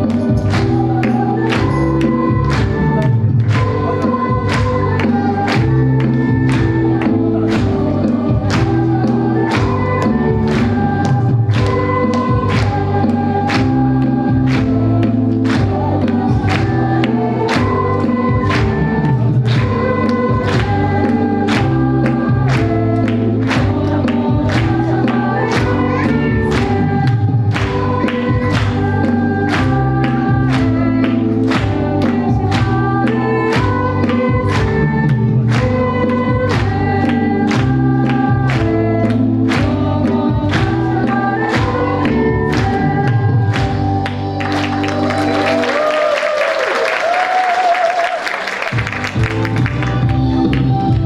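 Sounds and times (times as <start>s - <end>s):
choir singing a hymn: 0.0s - 44.0s
instrumental accompaniment: 0.0s - 45.8s, 48.7s - 51.0s.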